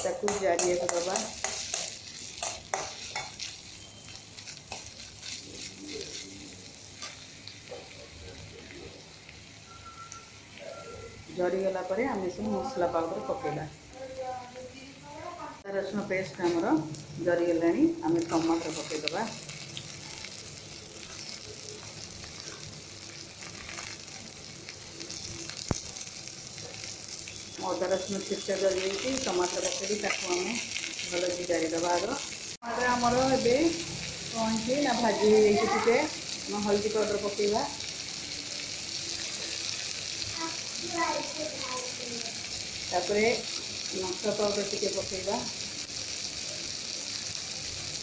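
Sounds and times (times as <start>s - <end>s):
spoon striking pan: 0.0s - 5.0s
garlic sizzling in hot oil: 0.0s - 48.0s.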